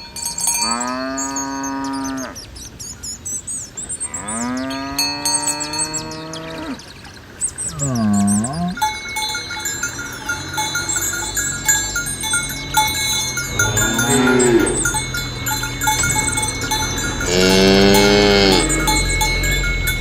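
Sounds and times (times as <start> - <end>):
cow bells clinking: 0.0 - 20.0
cattle mooing: 0.6 - 2.4, 4.1 - 6.8, 7.8 - 8.8, 12.6 - 20.0.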